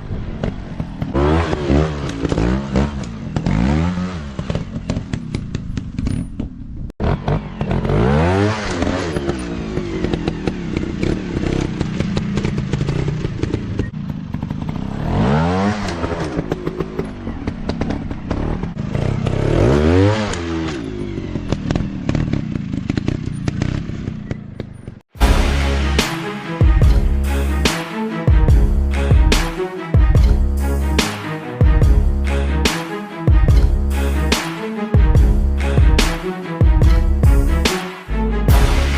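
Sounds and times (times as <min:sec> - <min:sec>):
dirt bike engines revving: 0:00.2 - 0:05.7
clatter and crackle: 0:02.0 - 0:07.9, 0:08.6 - 0:15.1, 0:20.3 - 0:25.0.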